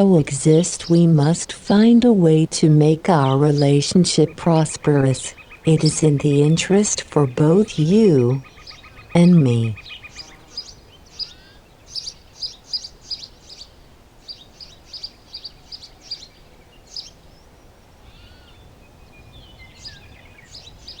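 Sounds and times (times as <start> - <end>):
low background noise: 0.0 - 21.0
small bird chirping: 3.2 - 17.4.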